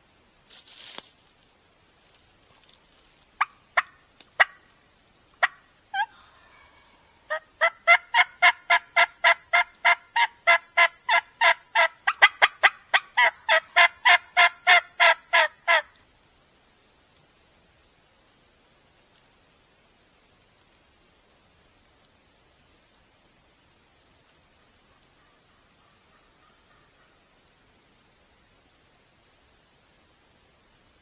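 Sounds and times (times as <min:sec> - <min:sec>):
turkey clucks: 0:03.4 - 0:04.7, 0:05.4 - 0:15.9, 0:24.5 - 0:27.4
turkey yelps: 0:05.4 - 0:15.9, 0:24.6 - 0:27.3.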